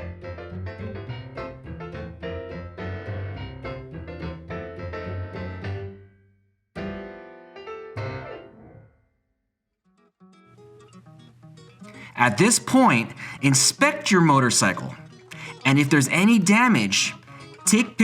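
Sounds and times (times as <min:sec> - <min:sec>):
piano music: 0:00.0 - 0:06.1, 0:06.8 - 0:08.9.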